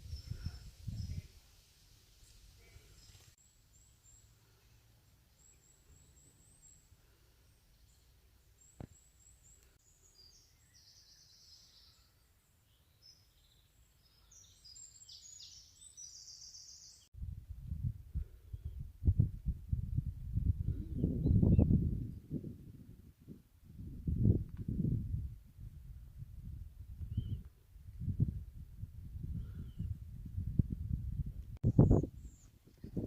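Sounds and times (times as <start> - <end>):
small birds chirping: 2.2 - 17.1, 27.0 - 27.5, 29.2 - 30.0.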